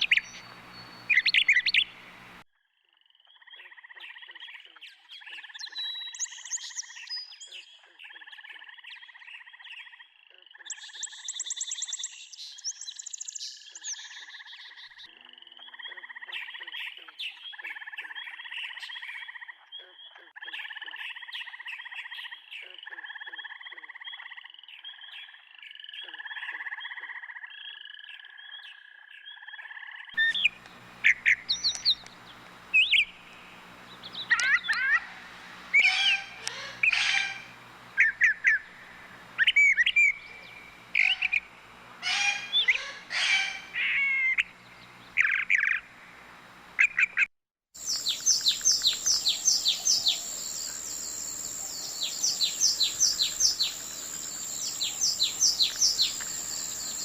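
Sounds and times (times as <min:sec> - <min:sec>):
high-pitched bird chirping: 0:00.0 - 0:02.2, 0:30.2 - 0:33.2, 0:33.9 - 0:38.8, 0:39.4 - 0:41.4, 0:42.0 - 0:44.5, 0:47.8 - 0:50.4, 0:51.5 - 0:53.8, 0:54.4 - 0:57.0
bird calls gliding in pitch: 0:00.0 - 0:02.4, 0:30.2 - 0:46.0, 0:46.8 - 0:57.0
run of bird calls: 0:00.0 - 0:02.4, 0:30.2 - 0:45.7.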